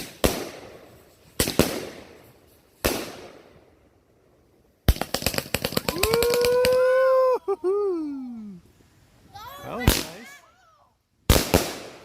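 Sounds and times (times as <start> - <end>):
fireworks bangs: 0.0 - 3.6, 4.8 - 7.2, 9.7 - 10.4, 11.3 - 12.0
fireworks crackling pops: 0.0 - 3.8, 4.8 - 7.0, 9.7 - 10.5, 11.2 - 12.0
man cheering: 5.8 - 8.6.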